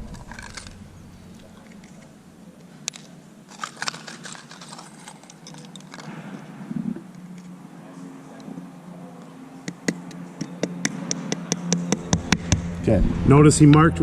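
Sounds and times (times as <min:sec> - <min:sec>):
low hum: 0:00.0 - 0:02.7, 0:10.7 - 0:14.0.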